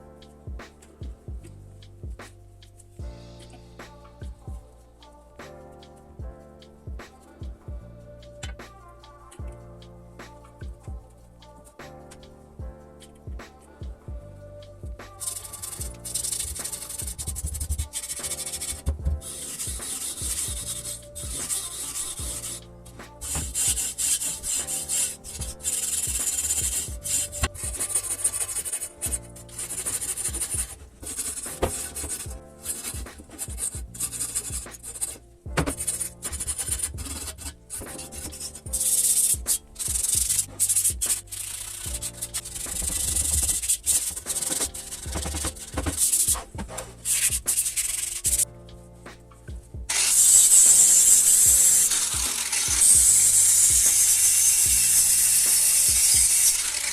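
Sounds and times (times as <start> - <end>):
background music: 0.0 - 56.9
abrasive rubbing on metal part: 15.1 - 48.4, 49.2 - 56.9
rasping sanding strokes: 15.2 - 48.4, 49.9 - 56.9.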